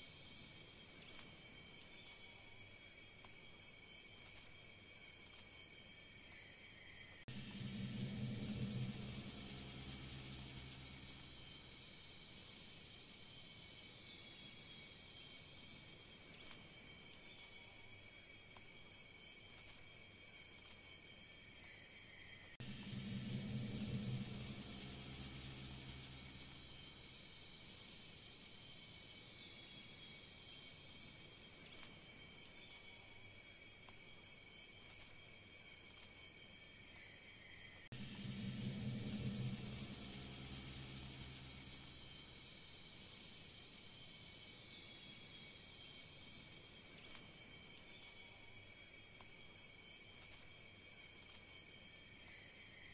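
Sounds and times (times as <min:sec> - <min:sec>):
high insect-like trill: 0:06.3 - 0:15.4, 0:22.6 - 0:32.9, 0:37.9 - 0:48.6
low drone: 0:07.3 - 0:11.9, 0:22.6 - 0:27.2, 0:37.9 - 0:42.4.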